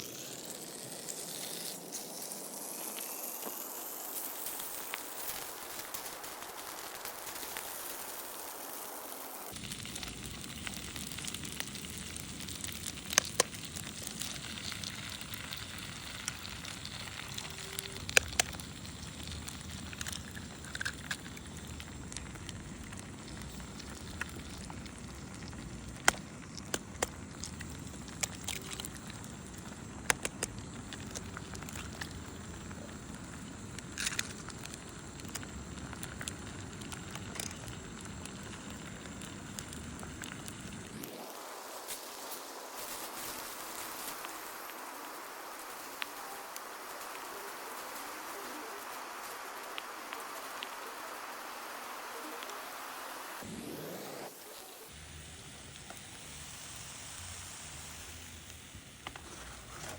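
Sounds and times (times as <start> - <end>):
fire crackling and popping: 0.0 - 59.9.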